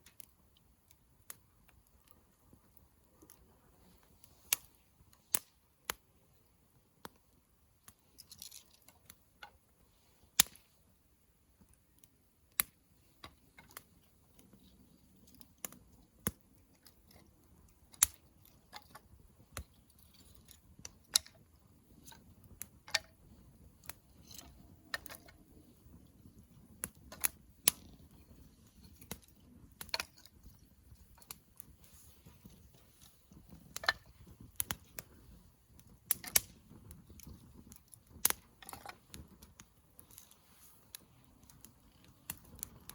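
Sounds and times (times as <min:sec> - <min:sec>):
campfire crackling and popping: 0:00.0 - 0:42.9
low hiss of fire: 0:00.0 - 0:42.9.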